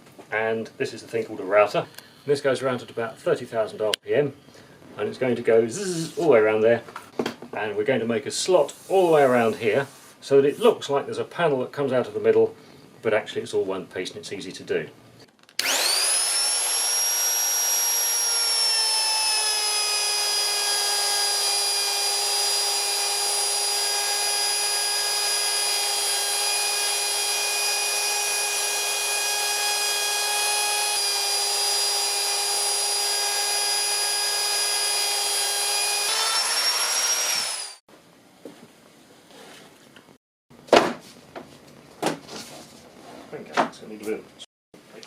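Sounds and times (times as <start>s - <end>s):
electric router whining: 15.6s - 37.8s.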